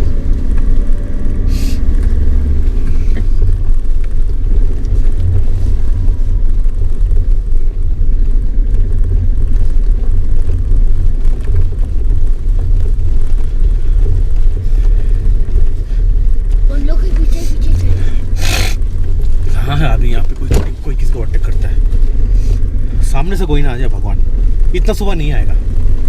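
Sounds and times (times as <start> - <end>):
engine and tyres rumbling: 0.0 - 26.0
brief hiss: 1.5 - 1.8, 18.4 - 18.8.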